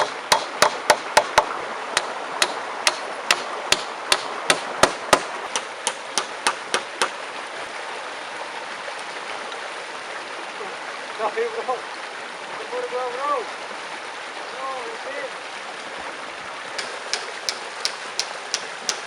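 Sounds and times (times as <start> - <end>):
flowing stream: 0.0 - 19.0.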